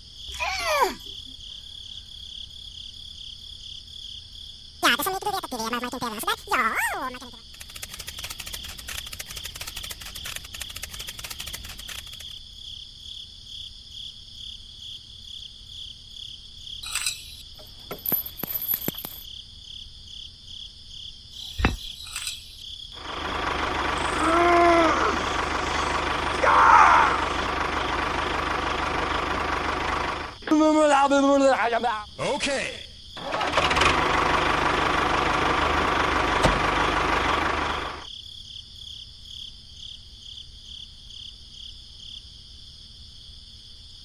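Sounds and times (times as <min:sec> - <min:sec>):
high pulsing insect-like trill: 0:04.8 - 0:12.4
steady mechanical noise: 0:07.3 - 0:12.3, 0:23.0 - 0:30.4, 0:33.2 - 0:38.1
rapid clicking: 0:07.4 - 0:12.4
short squeaks: 0:16.8 - 0:18.4, 0:21.4 - 0:22.6.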